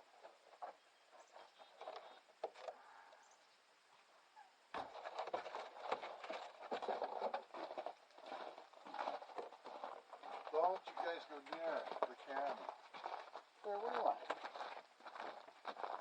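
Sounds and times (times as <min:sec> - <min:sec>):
dog paws pattering: 0:04.8 - 0:16.0.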